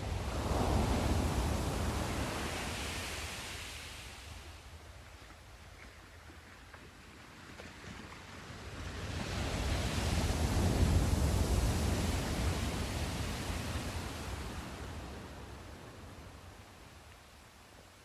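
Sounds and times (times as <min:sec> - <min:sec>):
sea wave breaking and washing back: 0:00.0 - 0:04.6, 0:07.5 - 0:16.0.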